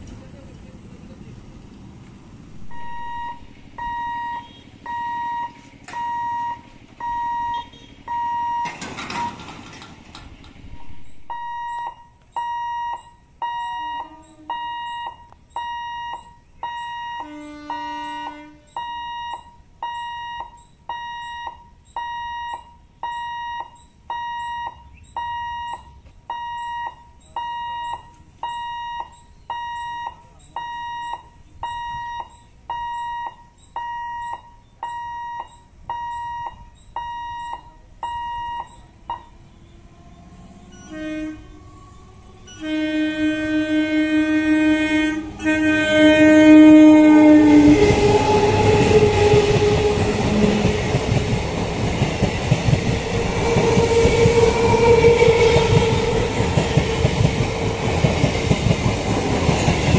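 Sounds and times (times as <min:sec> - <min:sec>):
train horn blasts: 0:02.5 - 0:05.8, 0:07.1 - 0:08.5, 0:13.0 - 0:15.4, 0:16.2 - 0:19.5, 0:37.4 - 0:51.6, 0:52.9 - 0:58.2
level crossing alarm beeping: 0:02.5 - 0:59.9
train wheels clattering over rail joints: 0:07.9 - 0:11.3, 0:47.4 - 0:59.9.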